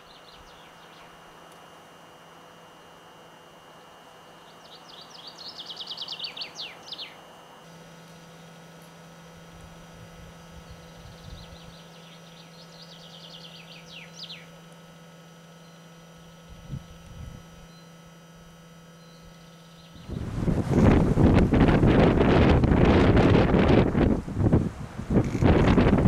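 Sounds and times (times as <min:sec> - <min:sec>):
songbird singing: 0:00.0 - 0:01.4, 0:03.7 - 0:07.4, 0:10.3 - 0:16.2, 0:17.6 - 0:18.1, 0:18.9 - 0:20.3
faint steady hum: 0:00.0 - 0:26.0.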